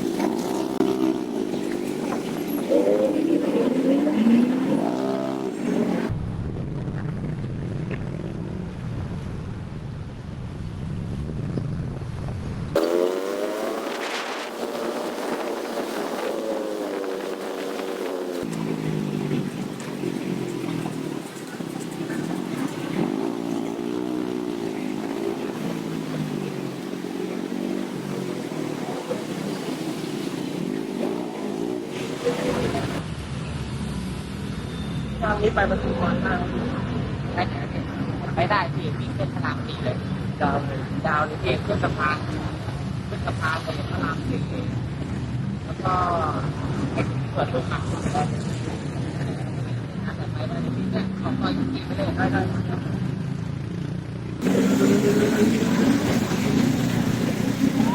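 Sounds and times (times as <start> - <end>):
motorbike engine revving: 0.0 - 6.1, 12.7 - 33.0, 54.4 - 57.9
low road rumble: 0.0 - 57.9
wind noise on microphone: 6.0 - 18.6.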